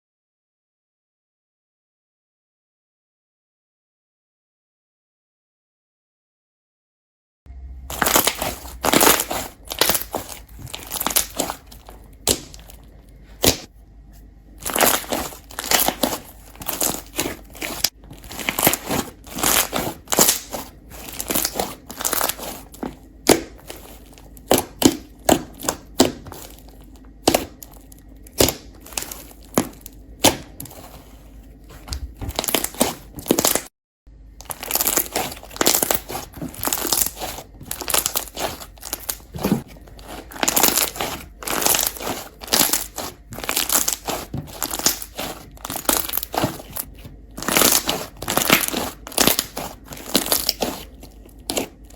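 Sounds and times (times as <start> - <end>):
slime squished by hand: 7.9 - 12.8, 14.6 - 33.7, 34.4 - 51.9.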